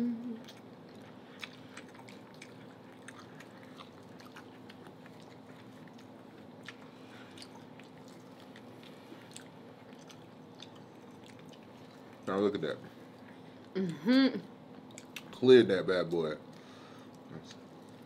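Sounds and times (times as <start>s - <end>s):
biting and chewing corn: 0.5s - 12.2s.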